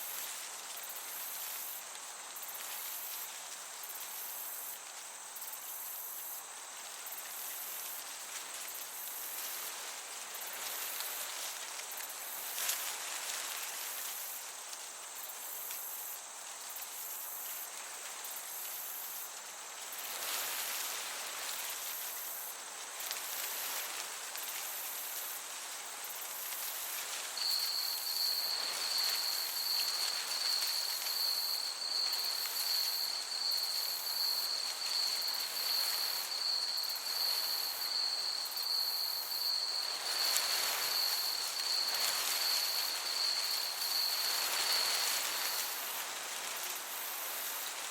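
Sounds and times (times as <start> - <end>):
continuous cricket trill: 0.0 - 47.9
crickets chirping: 0.0 - 47.9
breeze hissing: 17.0 - 47.9.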